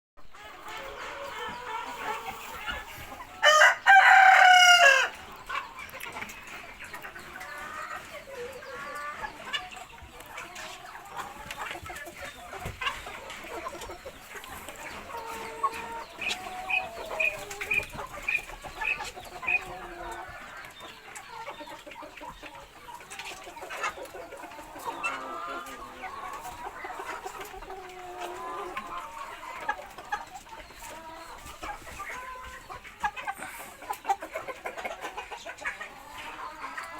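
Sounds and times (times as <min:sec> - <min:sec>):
chickens clucking: 0:00.2 - 0:36.9
rooster crowing: 0:03.4 - 0:05.2.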